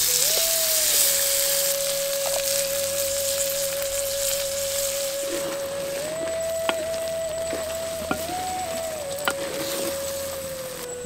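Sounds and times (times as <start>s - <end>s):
meat sizzling in hot oil: 0.0s - 6.0s
background music long note: 0.0s - 11.0s.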